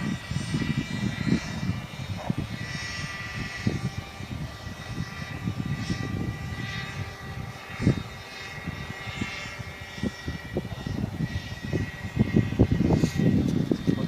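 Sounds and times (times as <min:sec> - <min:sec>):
model helicopter engine running: 0:00.0 - 0:14.0
wind buffeting microphone: 0:00.0 - 0:14.0.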